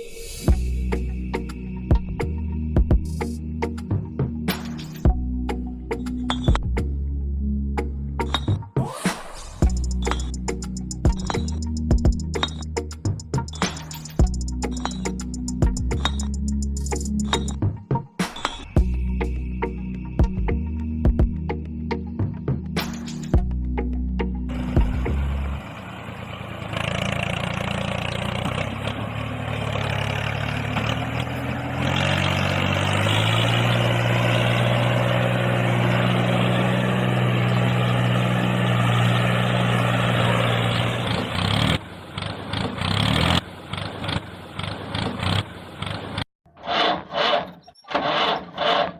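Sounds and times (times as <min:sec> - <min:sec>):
engine droning: 0:09.6 - 0:17.8, 0:18.8 - 0:48.9.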